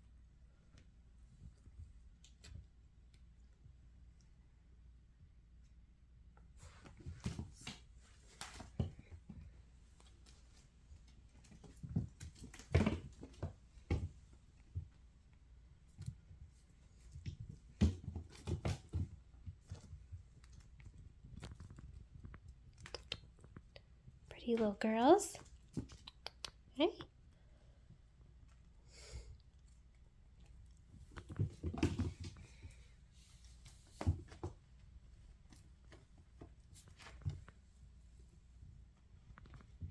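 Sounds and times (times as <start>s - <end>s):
kittens playing thumps: 6.6s - 23.7s, 29.8s - 39.9s.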